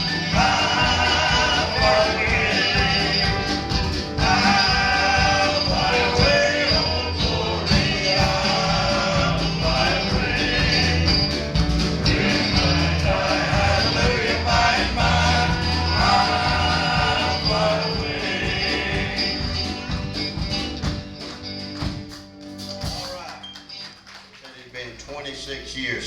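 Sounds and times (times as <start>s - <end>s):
male voices singing in harmony: 0.0s - 20.4s
band with bass and drums: 0.0s - 24.4s.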